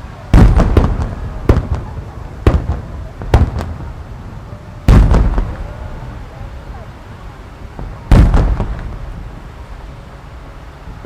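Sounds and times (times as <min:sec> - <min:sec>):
firework shells booming: 0:00.0 - 0:06.8, 0:07.7 - 0:09.5.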